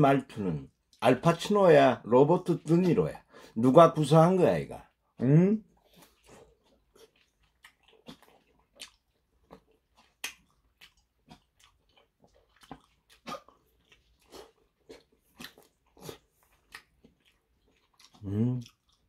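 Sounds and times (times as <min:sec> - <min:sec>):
wet chewing and mouth clicks: 0:05.7 - 0:19.0.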